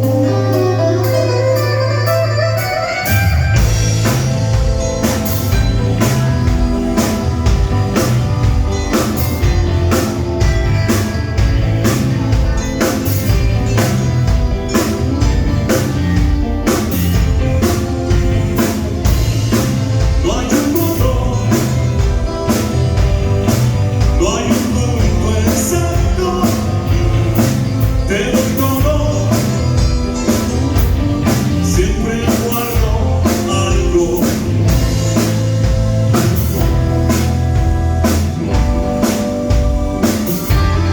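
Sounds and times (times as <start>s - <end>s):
drum kit: 0.0s - 40.9s
guitar: 0.0s - 40.9s
person singing: 16.6s - 35.3s.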